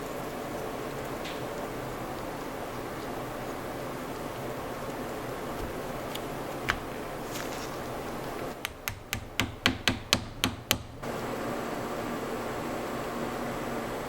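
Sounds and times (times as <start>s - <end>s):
sharp taps: 5.6s - 7.0s, 8.6s - 11.0s.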